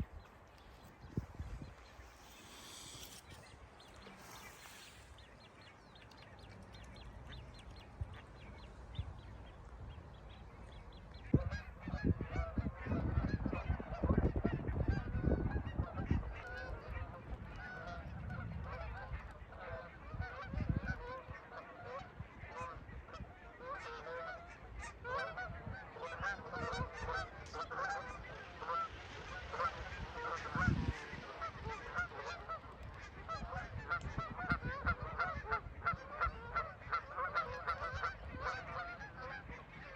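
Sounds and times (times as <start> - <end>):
flock of birds calling: 0.0 - 13.4, 26.0 - 39.9.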